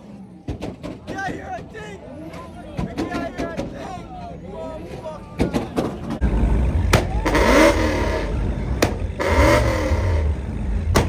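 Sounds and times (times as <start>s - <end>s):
car engine revving: 6.1s - 11.0s.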